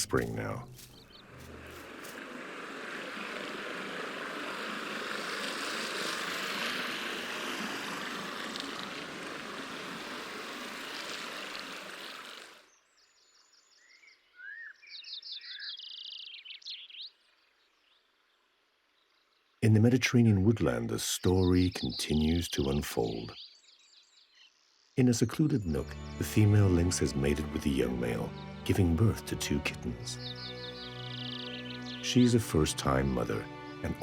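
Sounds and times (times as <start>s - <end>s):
birds chirping and singing: 13.0s - 17.2s, 20.6s - 34.0s.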